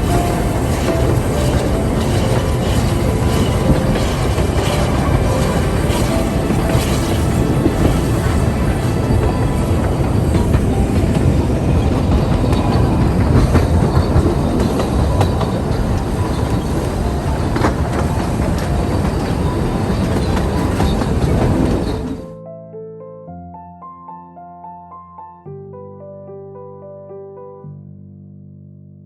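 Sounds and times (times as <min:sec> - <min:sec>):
steam train rumbling: 0:00.0 - 0:22.2
wheels clattering over rails: 0:00.0 - 0:22.2.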